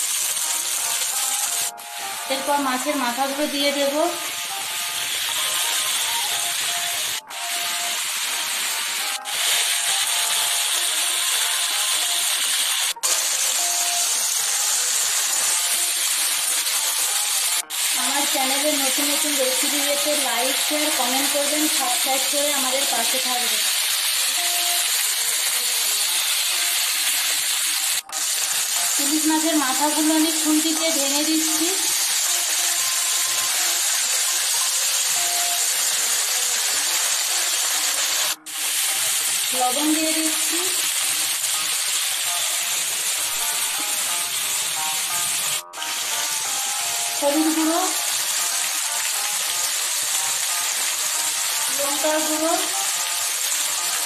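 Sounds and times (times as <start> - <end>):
food sizzling in hot oil: 0.0 - 54.0.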